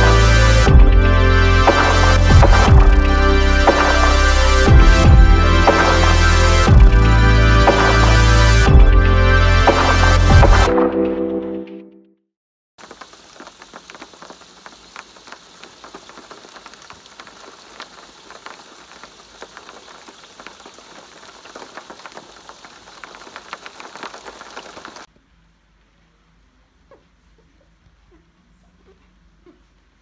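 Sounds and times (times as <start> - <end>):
rain pattering on hard surface: 0.0 - 8.9, 12.8 - 26.0.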